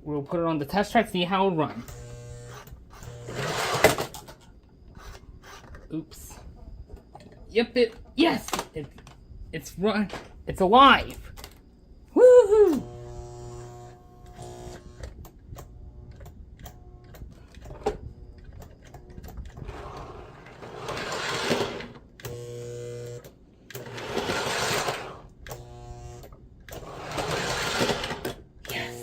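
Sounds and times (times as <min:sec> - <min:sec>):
electrical hum: 0:00.5 - 0:29.0
model train motor whirring: 0:01.8 - 0:04.2, 0:04.9 - 0:05.8, 0:12.8 - 0:29.0.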